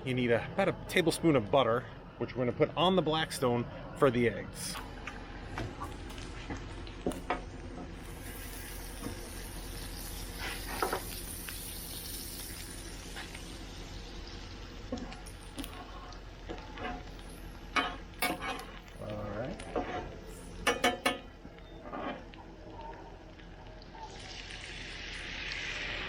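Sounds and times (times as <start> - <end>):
food sizzling on griddle: 7.9 - 22.3, 24.0 - 26.0.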